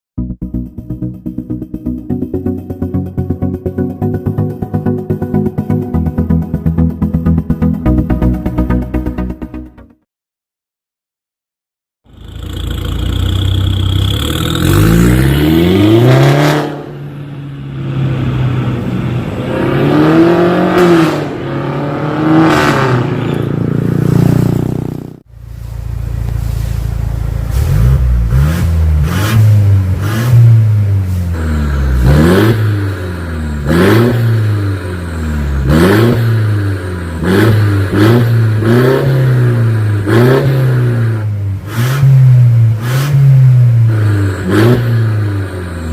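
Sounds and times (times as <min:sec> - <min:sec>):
car engine revving: 0:12.1 - 0:45.9.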